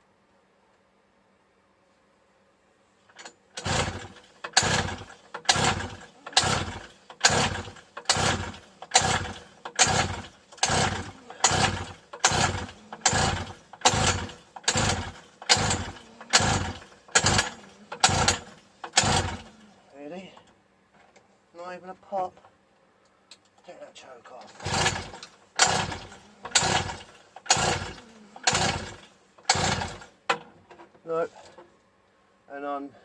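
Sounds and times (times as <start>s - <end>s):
engine pull starter cranking: 3.1s - 19.8s, 24.4s - 30.5s.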